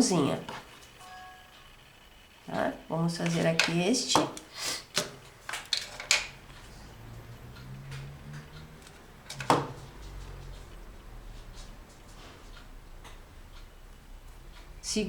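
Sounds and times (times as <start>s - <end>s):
light clicks and taps: 3.2s - 13.7s
faint low hum: 5.2s - 15.0s.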